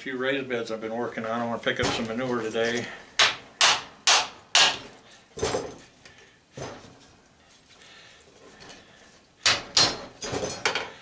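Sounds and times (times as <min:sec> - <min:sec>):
metal parts knocking and clattering: 0:05.3 - 0:05.9, 0:09.8 - 0:11.0.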